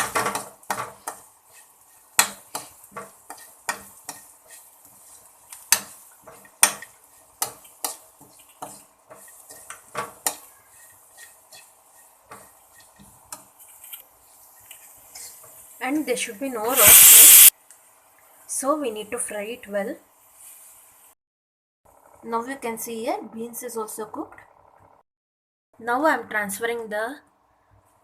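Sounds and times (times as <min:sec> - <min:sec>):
faint sizzle of frying paste: 0:00.0 - 0:21.2
utensil scraping a pan: 0:00.1 - 0:15.5.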